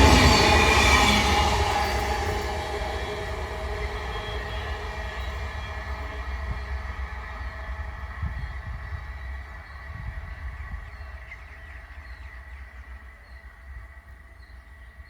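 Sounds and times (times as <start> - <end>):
rails ringing: 0.0 - 6.4
train rumbling: 0.0 - 15.0.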